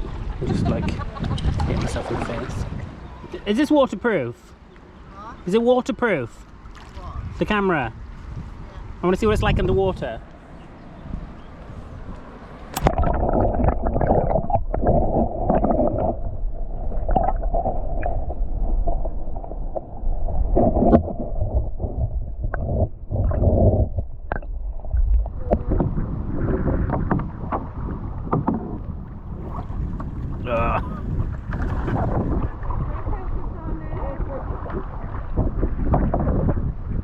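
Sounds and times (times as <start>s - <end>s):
water splash: 1.3s - 2.9s, 6.7s - 7.1s, 12.7s - 36.5s
bubbling: 12.8s - 36.6s
muffled underwater gurgling: 12.8s - 37.0s.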